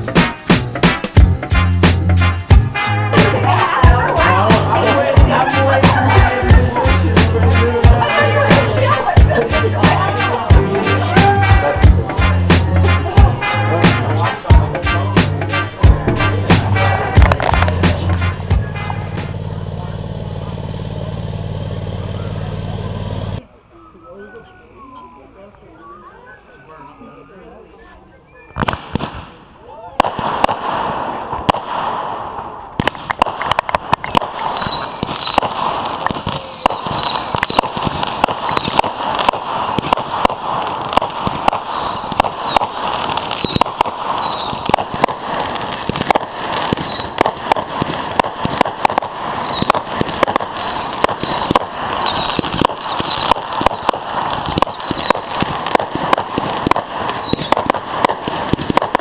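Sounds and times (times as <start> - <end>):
fireworks crackling and popping: 0.0 - 23.4, 28.4 - 59.0
falling firework whistles: 28.3 - 59.0.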